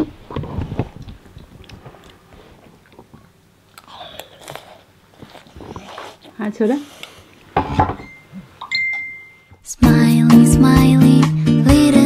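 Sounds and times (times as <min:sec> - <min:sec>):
child chewing noodles: 0:01.0 - 0:07.6.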